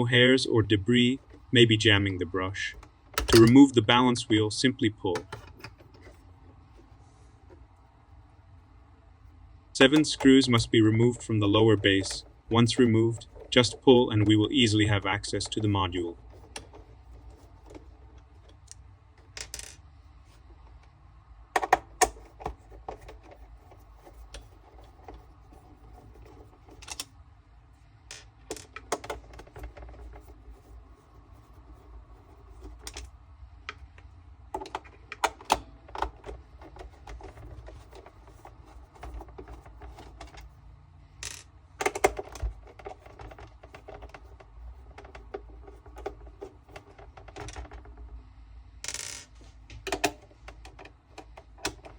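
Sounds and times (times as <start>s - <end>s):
plastic parts clicking and knocking: 1.0s - 1.5s, 2.6s - 3.7s, 5.0s - 7.8s, 9.8s - 20.9s, 21.5s - 27.2s, 28.0s - 40.6s, 41.2s - 48.2s, 48.8s - 51.9s.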